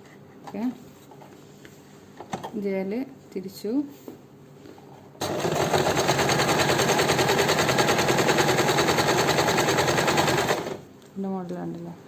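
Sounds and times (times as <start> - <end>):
electric sewing machine running: 5.2 - 10.9.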